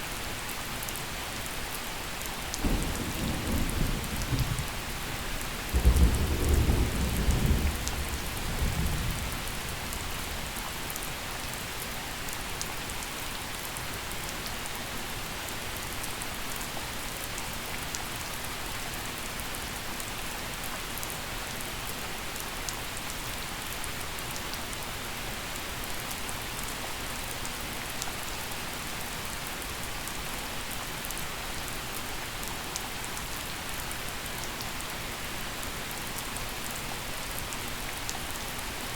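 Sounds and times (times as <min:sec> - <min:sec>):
gentle rain falling: 0:00.0 - 0:38.9
low rumble of thunder: 0:02.6 - 0:10.9.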